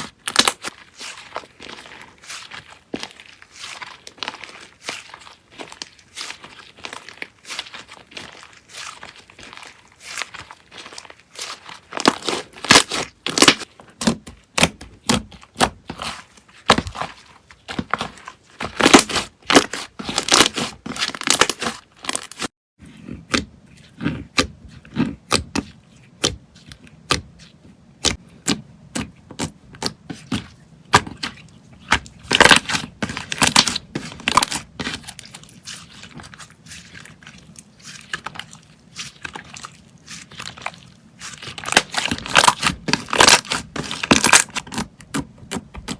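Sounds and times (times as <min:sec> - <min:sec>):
slime crackling and popping: 0:00.2 - 0:22.5, 0:30.9 - 0:37.2, 0:38.0 - 0:45.9.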